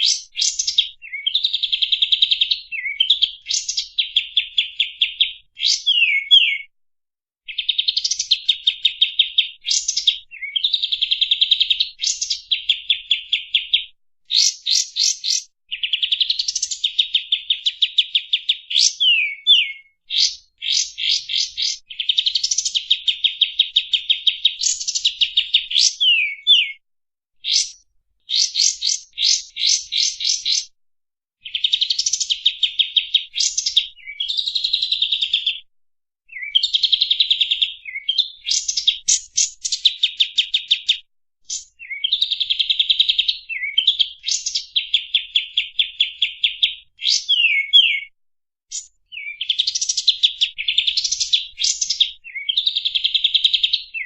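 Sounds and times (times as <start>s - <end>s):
songbird trilling: 0.0s - 6.7s, 7.5s - 26.8s, 27.4s - 30.7s, 36.3s - 48.1s.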